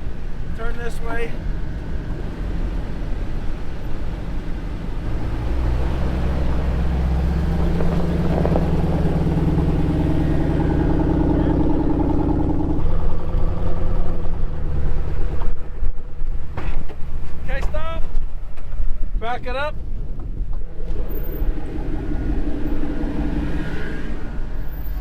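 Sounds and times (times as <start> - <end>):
truck engine running under load: 1.6 - 17.4, 20.2 - 25.0
high steady whine: 20.6 - 25.0.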